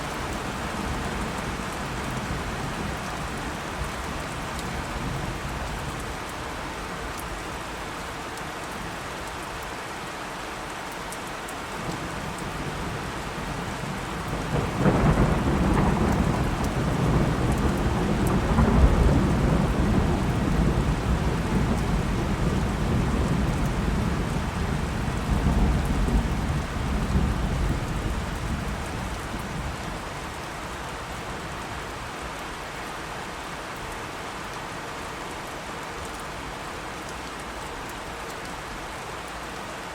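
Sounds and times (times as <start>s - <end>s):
steady rain falling: 0.0s - 39.9s
thunder rolling: 14.4s - 29.2s.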